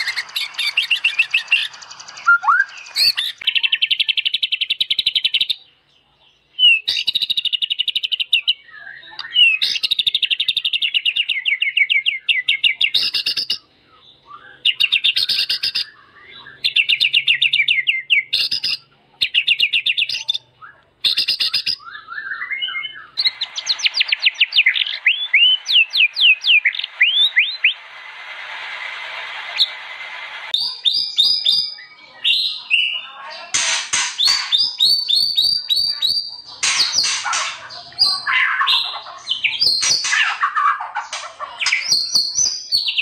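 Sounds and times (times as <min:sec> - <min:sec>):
downward-sweeping whistles: 0:00.0 - 0:03.4, 0:21.2 - 0:32.0
songbird singing: 0:00.0 - 0:28.1, 0:30.5 - 0:43.0
hiss: 0:27.8 - 0:30.6.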